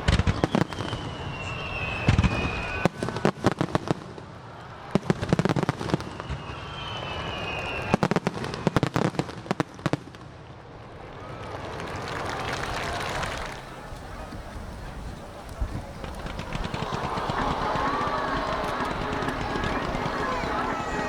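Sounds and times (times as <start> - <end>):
falling firework whistle: 0.0 - 4.0, 5.2 - 8.8, 15.5 - 21.0
fireworks bangs and crackling: 0.0 - 21.0.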